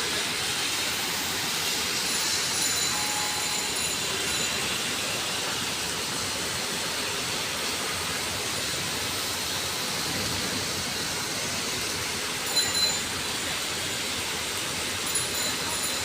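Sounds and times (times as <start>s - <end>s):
heavy rain hissing: 0.0s - 16.0s
sharp high-pitched sound: 2.0s - 4.6s, 12.5s - 13.1s.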